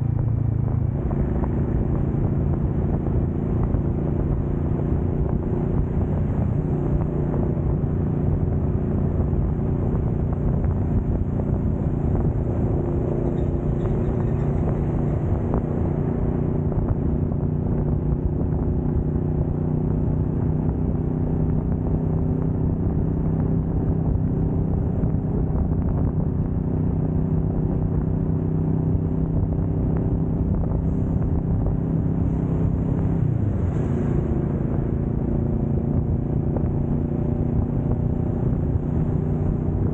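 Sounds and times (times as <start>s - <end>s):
motorcycle engine cruising: 0.0s - 39.9s
road and wind noise: 0.0s - 39.9s.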